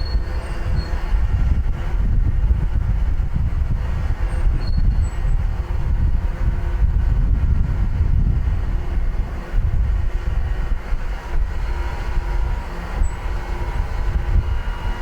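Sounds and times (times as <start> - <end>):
faint high squeak: 0.0 - 1.1, 4.3 - 5.3
wind buffeting microphone: 0.0 - 15.0.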